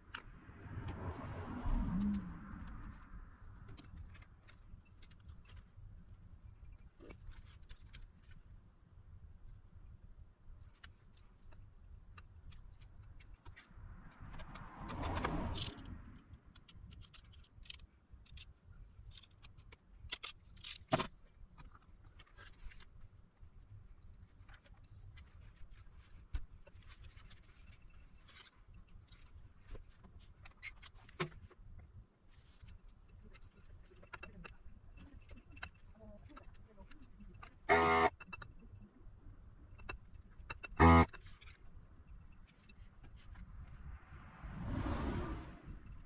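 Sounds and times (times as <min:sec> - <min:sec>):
small tools clicking and tapping: 0:14.3 - 0:23.0, 0:24.4 - 0:38.8, 0:39.7 - 0:43.2.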